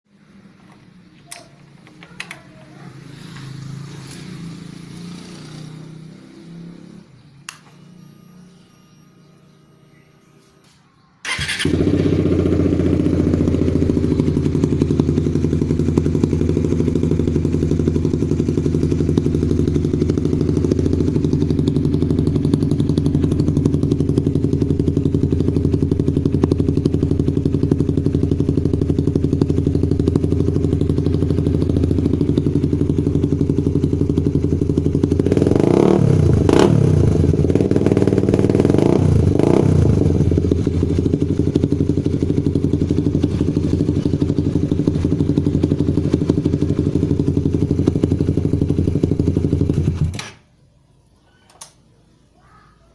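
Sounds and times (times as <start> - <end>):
engine revving in throttle blips: 2.9 - 9.1, 11.2 - 50.1
motorcycle engine idling: 11.2 - 50.2.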